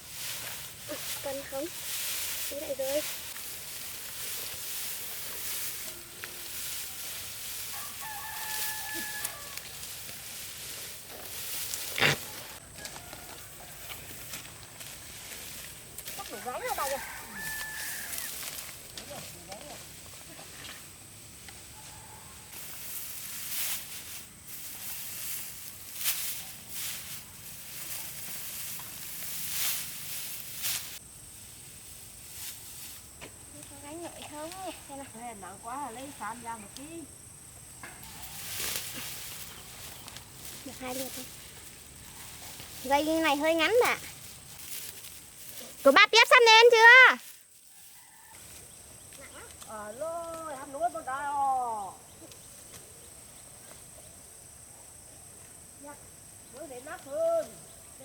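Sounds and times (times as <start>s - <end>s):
outdoor hiss: 0.0s - 12.3s, 22.5s - 48.1s
rice stalks rustling and swishing: 0.0s - 35.0s, 38.0s - 49.8s
rooster crowing: 7.7s - 9.9s, 12.4s - 14.1s, 16.3s - 18.4s, 21.7s - 22.5s, 47.7s - 48.7s.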